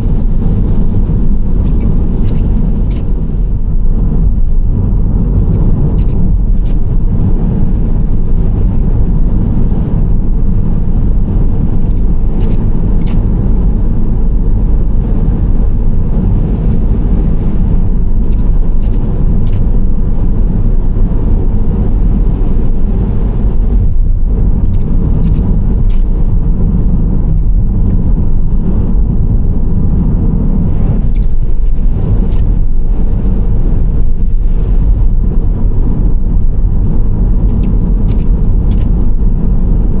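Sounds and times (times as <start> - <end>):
low engine rumble: 0.0 - 40.0
tyre road noise: 0.0 - 40.0.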